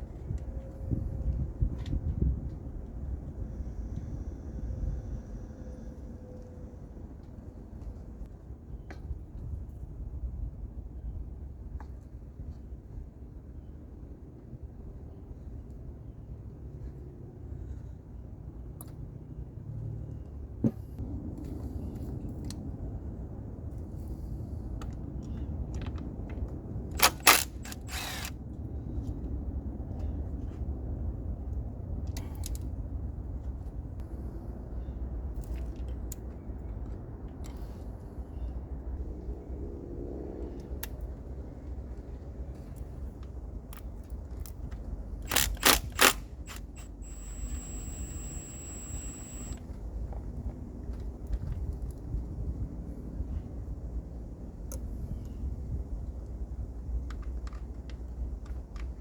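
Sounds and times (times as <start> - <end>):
steady low rumble: 20.8 - 49.6
tools clicking and clacking: 27.0 - 28.3, 45.3 - 49.6
thin high whine: 46.8 - 49.6.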